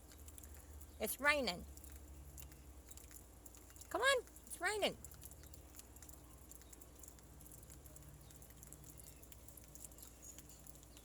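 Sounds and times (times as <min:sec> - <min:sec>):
faint rain pattering: 0:00.0 - 0:11.0
light drips and taps: 0:00.0 - 0:11.0.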